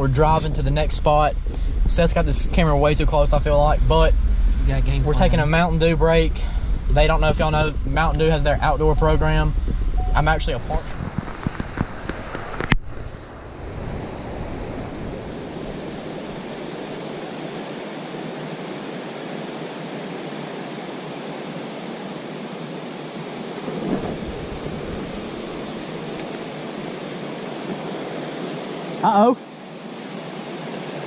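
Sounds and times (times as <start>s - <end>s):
water rushing over falls: 10.8s - 31.0s.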